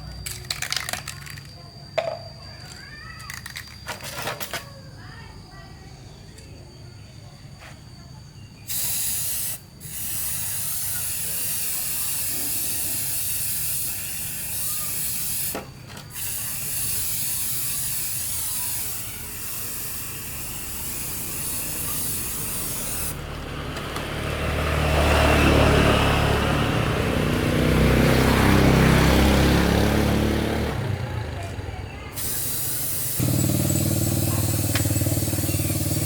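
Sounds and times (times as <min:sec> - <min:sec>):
pressurised spray hissing: 0:08.7 - 0:23.2, 0:32.1 - 0:36.0.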